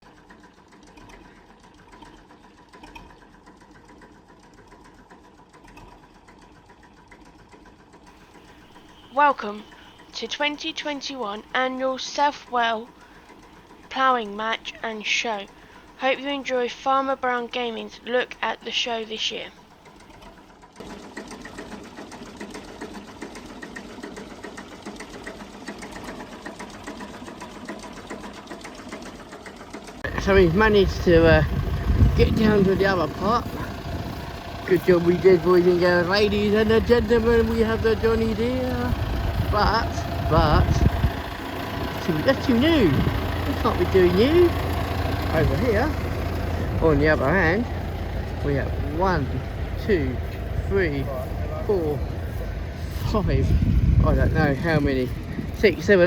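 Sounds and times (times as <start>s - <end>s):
machine ticking clatter: 0.0s - 51.7s
faint steady hum: 8.2s - 19.7s.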